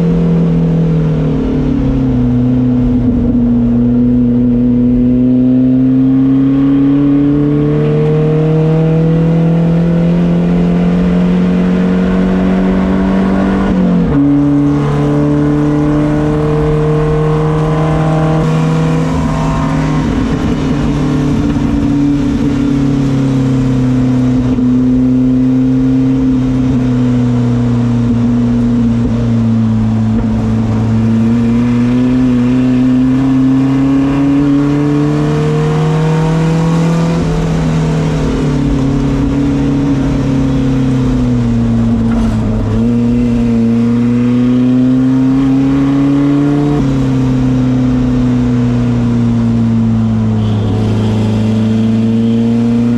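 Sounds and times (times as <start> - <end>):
race car engine revving: 0.0 - 52.9.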